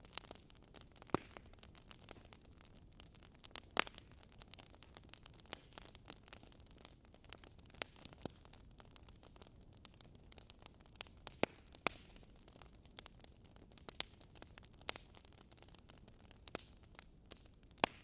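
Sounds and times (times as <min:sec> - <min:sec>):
faint steady hiss: 0:00.0 - 0:18.0
wood fire crackling: 0:00.0 - 0:18.0.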